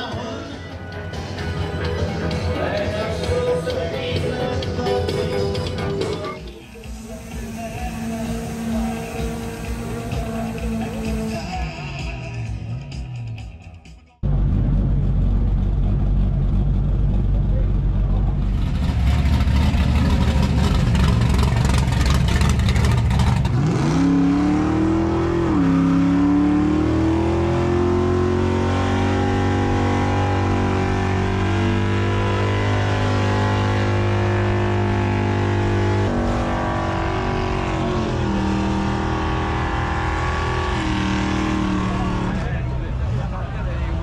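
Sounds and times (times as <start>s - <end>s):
car engine revving hard: 6.8s - 11.6s, 18.6s - 42.7s.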